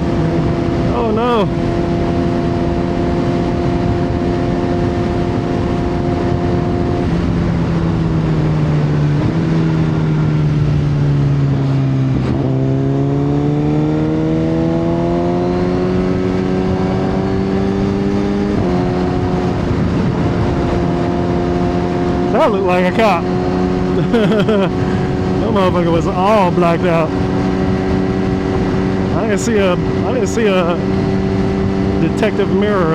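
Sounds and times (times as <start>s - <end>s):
motorcycle engine running: 26.1s - 32.9s.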